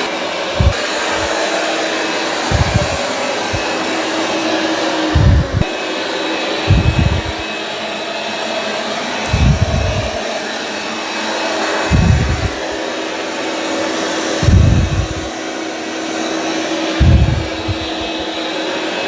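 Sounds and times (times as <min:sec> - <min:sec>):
robot vacuum running on carpet: 0:00.0 - 0:08.4, 0:09.2 - 0:10.8, 0:11.4 - 0:15.4, 0:16.2 - 0:19.0
short low thuds: 0:00.5 - 0:01.4, 0:02.5 - 0:03.8, 0:05.1 - 0:05.7, 0:06.7 - 0:07.5, 0:09.3 - 0:10.2, 0:11.9 - 0:12.8, 0:14.4 - 0:15.3, 0:17.0 - 0:18.3.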